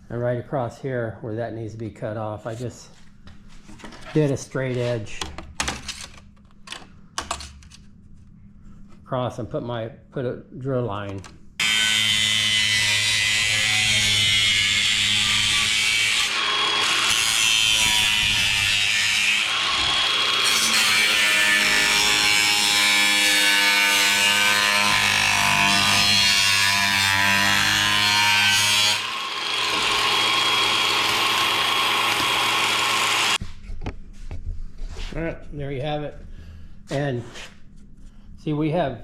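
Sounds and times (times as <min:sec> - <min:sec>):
power saw cutting wood: 0:11.6 - 0:33.4.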